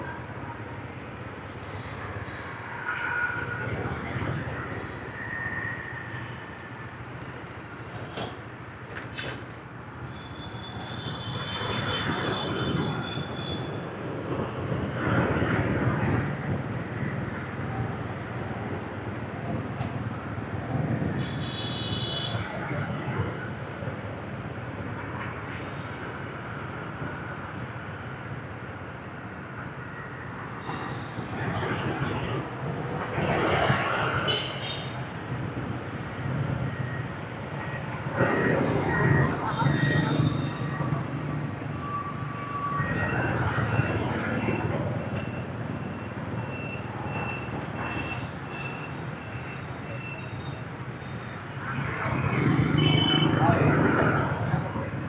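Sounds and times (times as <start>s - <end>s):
motorbike and street traffic: 0.0s - 55.0s
tyres on road: 14.3s - 55.0s
motorbike engines: 35.2s - 55.0s.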